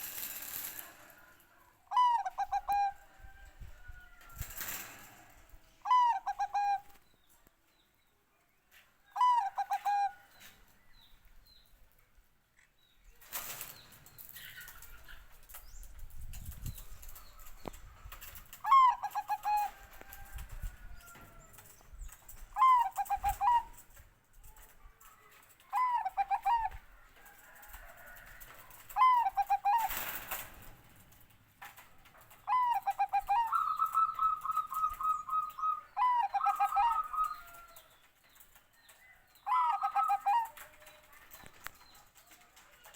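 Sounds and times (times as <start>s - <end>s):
rustling noise: 0.0s - 1.2s
dove cooing: 1.9s - 3.1s, 5.8s - 7.0s, 9.2s - 10.2s, 18.2s - 21.5s, 22.3s - 24.0s, 25.4s - 30.8s, 32.2s - 37.8s, 39.4s - 40.9s.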